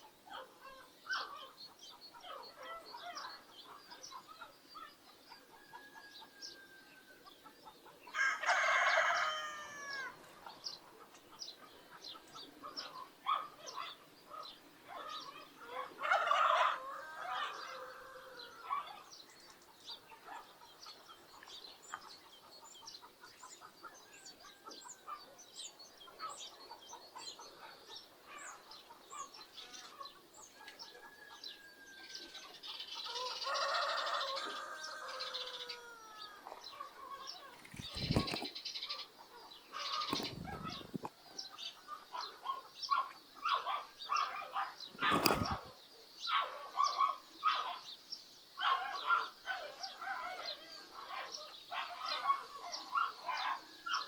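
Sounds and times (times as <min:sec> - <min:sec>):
small birds chirping: 0:17.4 - 0:54.0.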